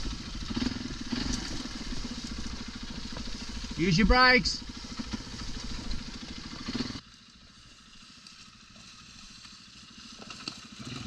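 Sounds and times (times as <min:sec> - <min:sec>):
faint rumble: 0:00.0 - 0:07.0
dirt bike engine running: 0:00.0 - 0:11.0.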